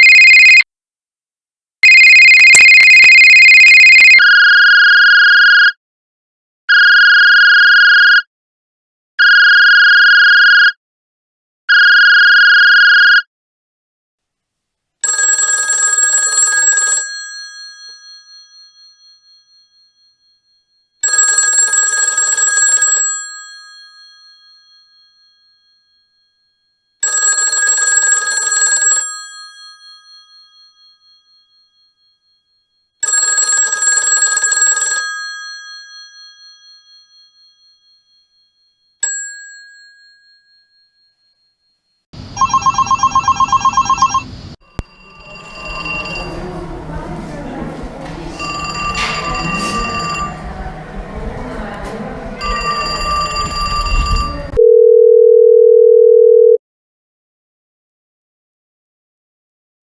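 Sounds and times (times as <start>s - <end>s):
telephone bell ringing: 0.0s - 0.6s, 1.8s - 5.6s, 6.7s - 8.2s, 9.3s - 10.7s, 11.8s - 13.2s, 15.0s - 26.2s, 27.0s - 32.2s, 33.0s - 41.6s, 42.4s - 56.6s
short ding: 48.6s - 50.4s.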